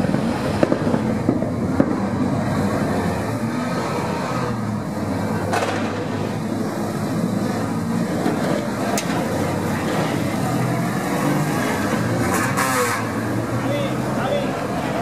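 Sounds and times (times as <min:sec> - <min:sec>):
race car engines running hard: 0:00.0 - 0:15.0
sharp cracks: 0:05.5 - 0:06.3.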